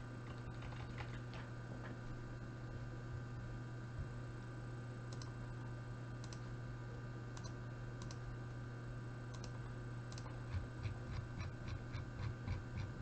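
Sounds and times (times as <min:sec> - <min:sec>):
steady low hum: 0:00.0 - 0:13.0
computer mouse clicking: 0:05.1 - 0:05.3, 0:06.2 - 0:06.5, 0:07.4 - 0:08.2, 0:09.3 - 0:12.9.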